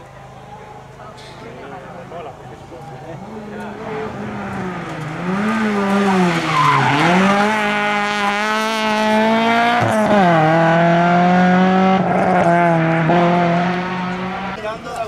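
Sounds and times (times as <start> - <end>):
rally car engine revving: 2.9 - 14.6.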